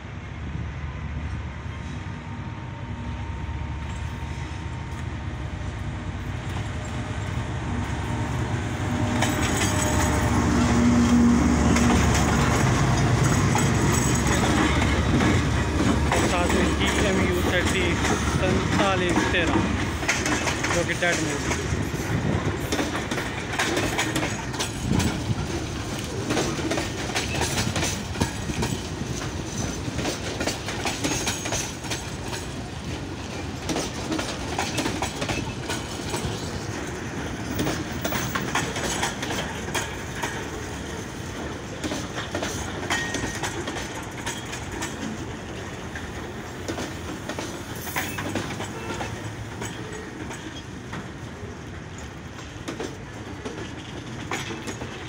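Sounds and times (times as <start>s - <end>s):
train wheels clacking over rail joints: 6.2s - 55.0s
wagons rattling: 8.9s - 50.7s.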